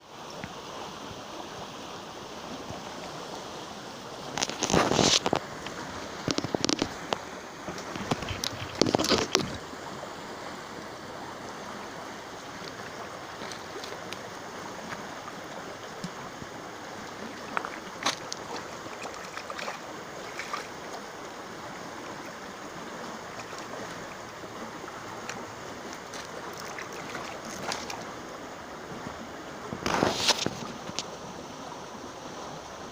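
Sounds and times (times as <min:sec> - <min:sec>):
river water rushing: 0:00.0 - 0:32.9
knocks and rustles: 0:06.2 - 0:09.6.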